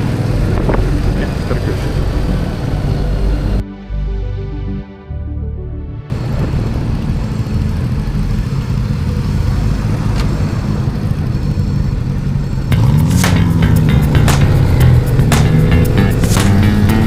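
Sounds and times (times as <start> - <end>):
motorcycle engine running: 0.0 - 3.6, 6.1 - 17.0
wind and road noise: 0.0 - 3.6, 6.1 - 17.0
music: 3.3 - 6.1, 12.7 - 17.0.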